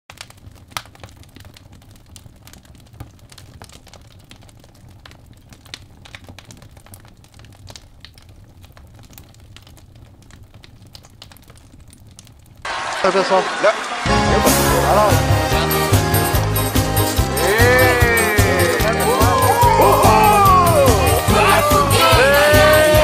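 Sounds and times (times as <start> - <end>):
low rumble of flames: 0.1 - 12.7
bonfire crackling and popping: 0.1 - 23.0.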